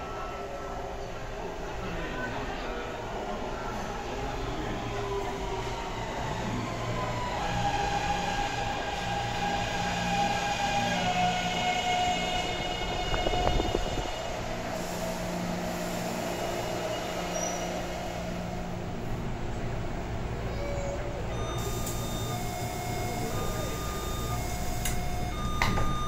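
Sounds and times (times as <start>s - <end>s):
train motor whine: 7.3s - 15.2s, 21.3s - 26.0s.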